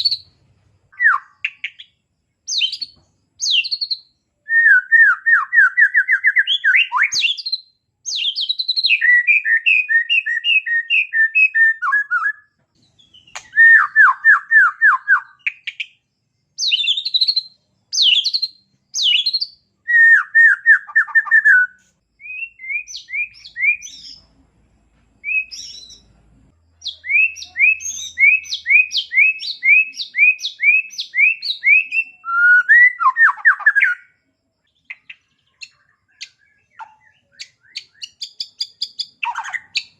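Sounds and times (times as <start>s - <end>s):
songbird singing trills: 0.0s - 24.5s, 25.2s - 39.9s.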